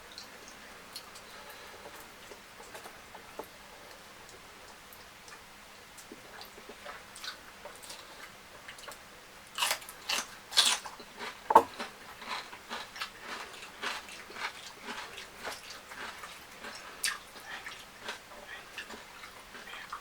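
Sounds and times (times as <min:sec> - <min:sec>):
person chewing food: 0:06.0 - 0:09.0, 0:09.6 - 0:20.0.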